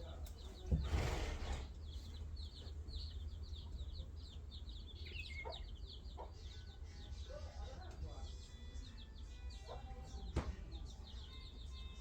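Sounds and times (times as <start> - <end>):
birds chirping: 1.6 - 6.4.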